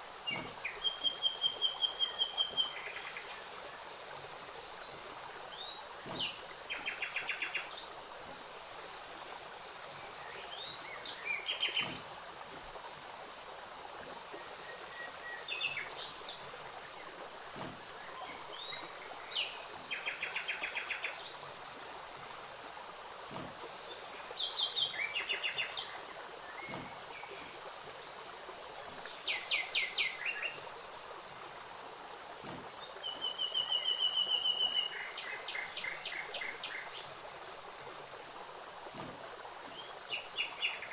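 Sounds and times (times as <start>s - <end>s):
steady hiss: 0.0s - 40.9s
songbirds chirping and trilling: 9.9s - 12.4s, 23.3s - 30.8s.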